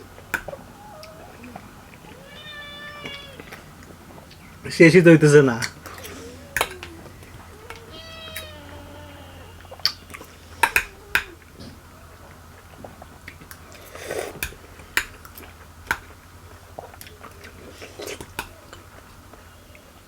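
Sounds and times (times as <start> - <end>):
wet chewing and mouth smacks: 0.0 - 2.3, 2.9 - 4.7, 5.5 - 19.9
slurp: 12.3 - 14.8.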